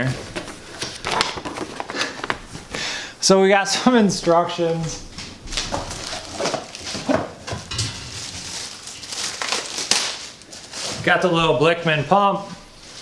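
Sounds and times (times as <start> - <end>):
packaging rustling and crinkling: 0.0 - 2.8, 5.1 - 11.4, 12.8 - 13.0.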